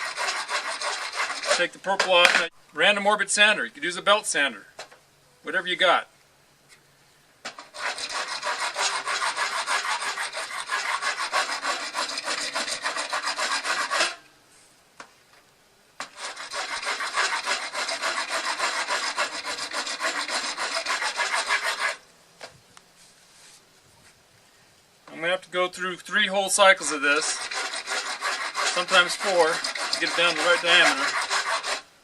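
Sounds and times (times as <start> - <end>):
rasp filing plastic: 0.0 - 2.5, 7.5 - 14.2, 16.0 - 22.0, 26.8 - 31.9.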